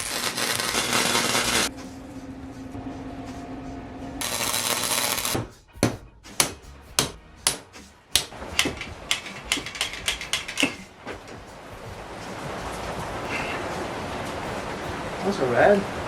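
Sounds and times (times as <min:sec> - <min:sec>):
sharp metallic knocks: 0:05.4 - 0:10.9.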